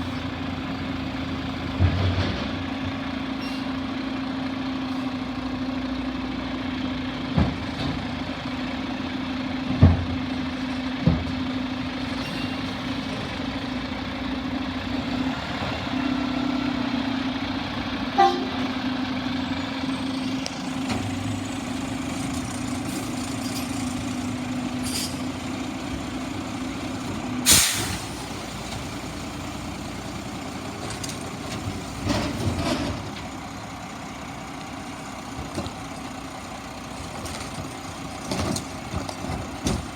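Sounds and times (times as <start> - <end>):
truck clunks: 0.0 - 5.1, 7.0 - 14.2, 14.8 - 39.9
garbage truck engine drone: 0.0 - 39.9
loud short air hiss: 24.8 - 25.2, 27.4 - 28.4.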